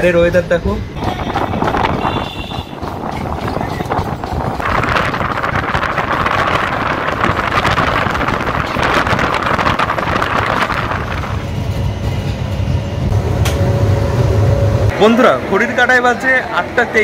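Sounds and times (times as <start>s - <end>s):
rushing air: 0.8s - 15.0s
wheel-on-rail clatter: 1.0s - 11.6s.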